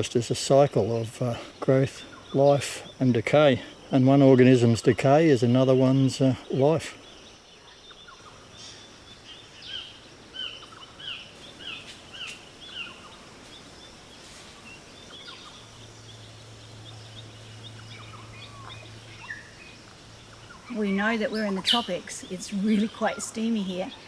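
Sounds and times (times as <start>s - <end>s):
faint background hiss: 0.0s - 24.0s
low steady hum: 8.2s - 24.0s.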